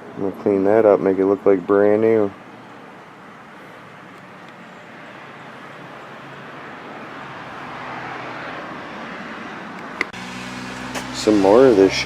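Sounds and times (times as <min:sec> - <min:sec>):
passing vehicle rushing: 0:04.9 - 0:12.0.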